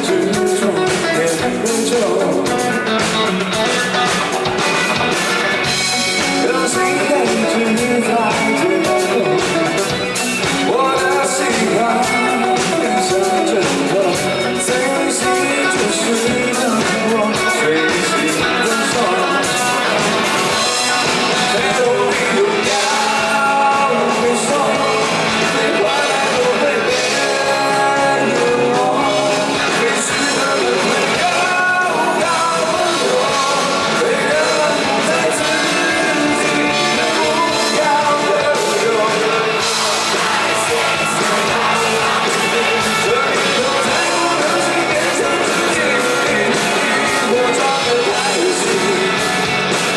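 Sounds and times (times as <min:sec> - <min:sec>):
lead singer singing: 0:00.0 - 0:49.9
rock band playing live: 0:00.0 - 0:49.9.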